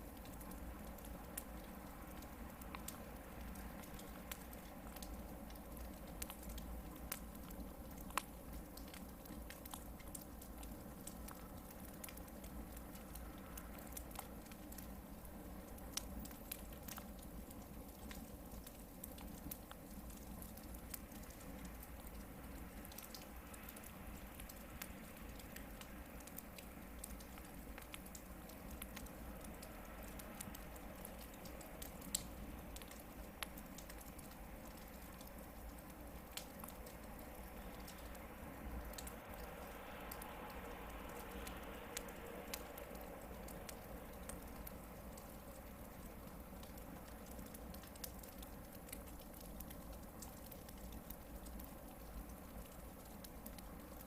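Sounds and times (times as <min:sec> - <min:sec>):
campfire hissing and crackling: 0:00.0 - 0:54.0.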